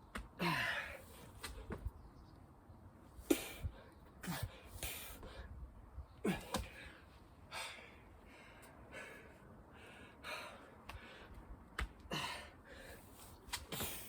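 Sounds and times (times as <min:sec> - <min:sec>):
man breathing hard and gasping: 0:00.4 - 0:01.2, 0:06.2 - 0:14.0.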